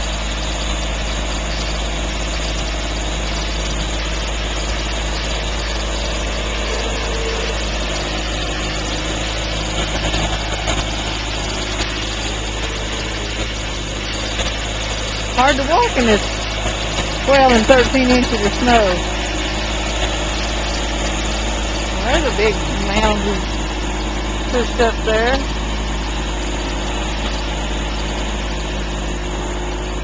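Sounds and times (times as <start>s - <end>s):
tractor engine idling: 0.0s - 30.0s.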